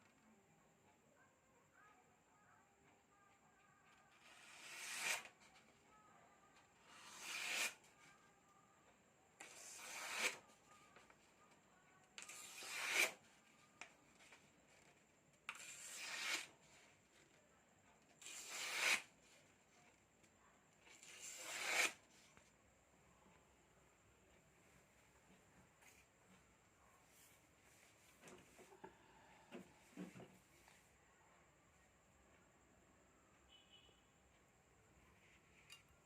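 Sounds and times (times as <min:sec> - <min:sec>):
knife blade scraping: 0:04.2 - 0:05.4, 0:06.8 - 0:07.9, 0:09.4 - 0:10.5, 0:12.2 - 0:13.2, 0:15.5 - 0:16.5, 0:18.2 - 0:19.1, 0:20.9 - 0:22.0.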